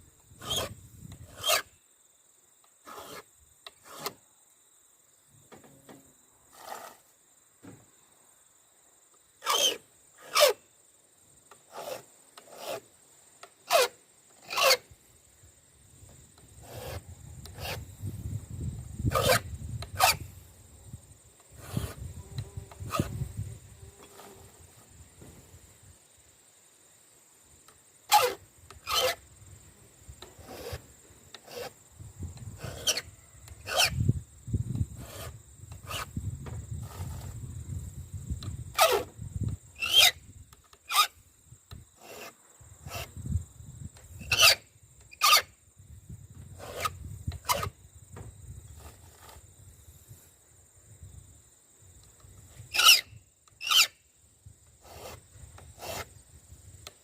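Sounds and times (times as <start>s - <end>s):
file rasping on saw chain: 0.4s - 1.7s, 2.9s - 3.2s, 3.8s - 4.1s, 6.5s - 7.0s, 9.4s - 10.6s, 11.7s - 12.8s, 13.7s - 14.8s, 16.6s - 17.8s, 19.1s - 20.2s, 21.6s - 22.0s, 28.1s - 29.2s, 30.4s - 30.8s, 31.4s - 31.8s, 32.6s - 34.0s, 35.0s - 36.1s, 39.8s - 40.2s, 42.0s - 43.1s, 44.2s - 44.6s, 45.2s - 45.4s, 46.6s - 47.7s, 52.7s - 53.0s, 53.6s - 53.9s, 54.8s - 56.1s.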